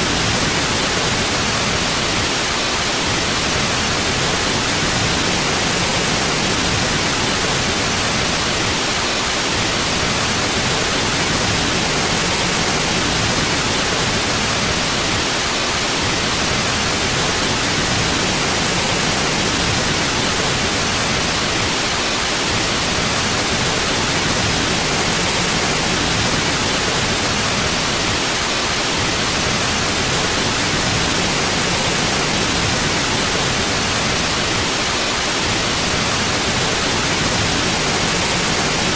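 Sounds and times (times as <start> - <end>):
white noise hiss: 0.0 - 38.9.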